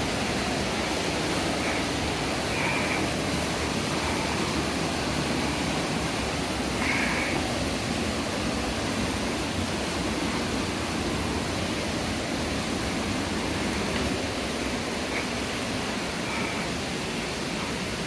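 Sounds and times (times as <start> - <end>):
white water rushing over falls: 0.0 - 18.0.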